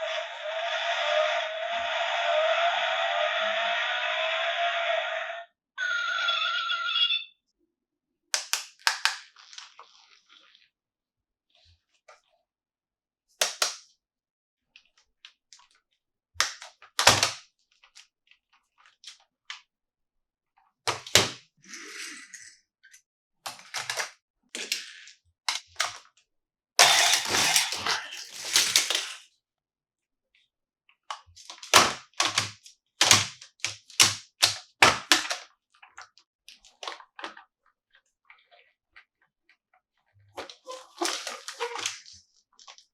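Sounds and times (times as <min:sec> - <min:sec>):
packaging crinkling: 0:26.8 - 0:29.2.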